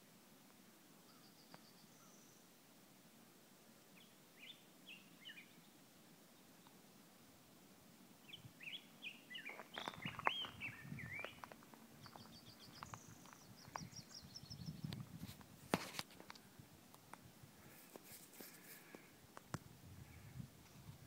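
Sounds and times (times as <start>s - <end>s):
faint songbirds singing: 0.8s - 2.7s, 3.7s - 15.6s, 16.2s - 21.0s
soft rustling: 9.3s - 14.0s, 14.9s - 19.6s.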